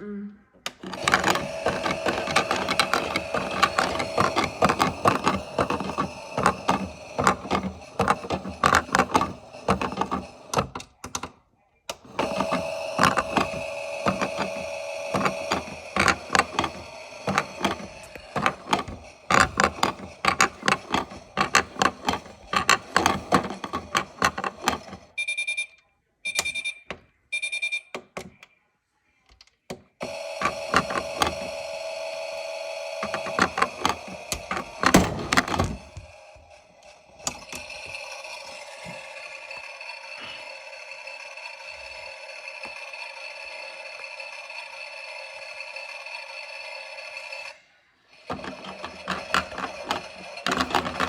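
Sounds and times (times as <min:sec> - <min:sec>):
machine hum: 0:00.7 - 0:11.3, 0:11.9 - 0:25.1, 0:30.0 - 0:46.2
machine handling clicks and knocks: 0:00.7 - 0:25.1, 0:29.4 - 0:31.5, 0:33.0 - 0:36.1, 0:37.2 - 0:37.8, 0:48.3 - 0:51.0.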